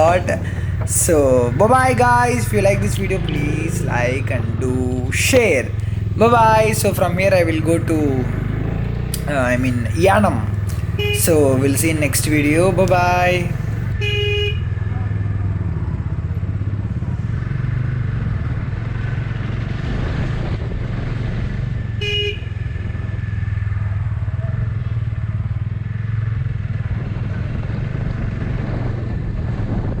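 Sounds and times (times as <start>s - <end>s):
motorcycle engine running: 0.0s - 30.0s
horn beep: 9.2s - 14.7s.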